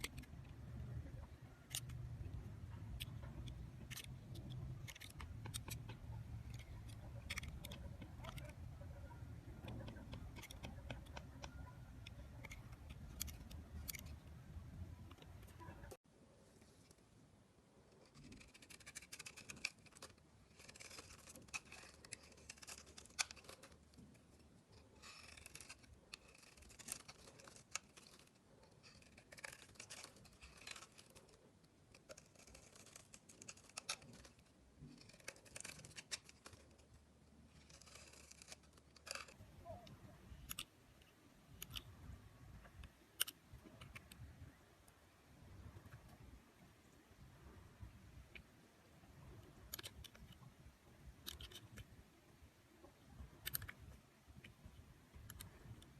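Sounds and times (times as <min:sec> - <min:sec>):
blade cutting dry soap: 0:00.0 - 0:15.9, 0:18.0 - 0:36.9, 0:37.5 - 0:40.7.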